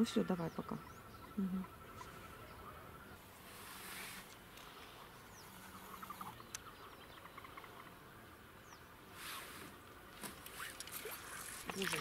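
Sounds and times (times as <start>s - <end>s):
soft rush of noise: 2.1s - 6.9s.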